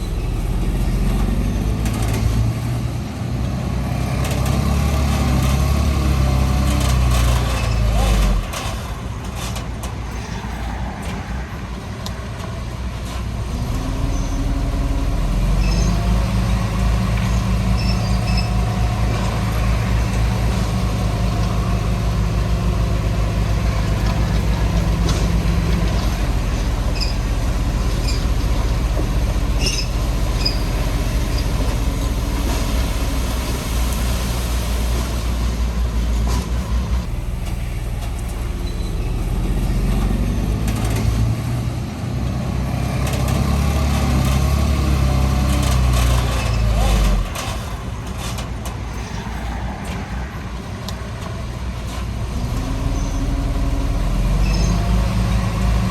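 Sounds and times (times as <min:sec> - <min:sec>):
heavy diesel machinery running: 0:00.0 - 0:10.1, 0:11.0 - 0:55.9
faint high squeaks: 0:15.5 - 0:16.1, 0:17.3 - 0:18.8, 0:26.9 - 0:28.5, 0:38.5 - 0:39.4, 0:54.4 - 0:55.0.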